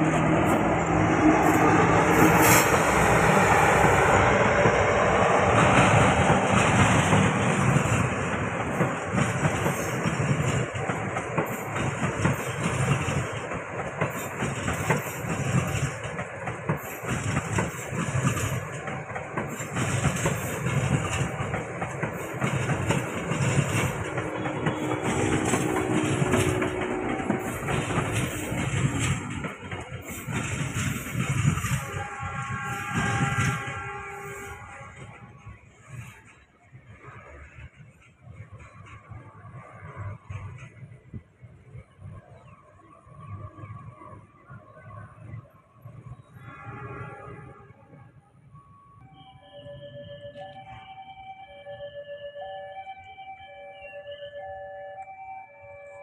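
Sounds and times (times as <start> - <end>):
train wheels clattering on track: 0.0 - 43.6.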